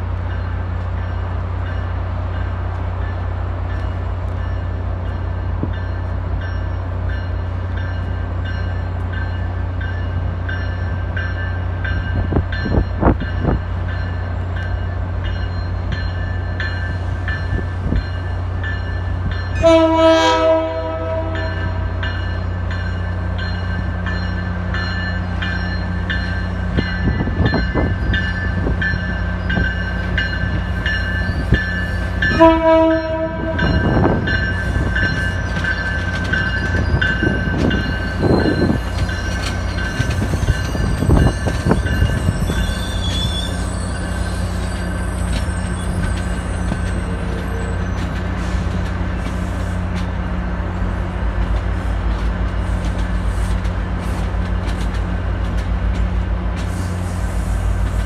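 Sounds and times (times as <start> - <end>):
diesel locomotive hum: 0.0 - 58.0
train horn blast: 19.6 - 22.0, 32.3 - 33.8
high wheel squeal: 37.9 - 48.7.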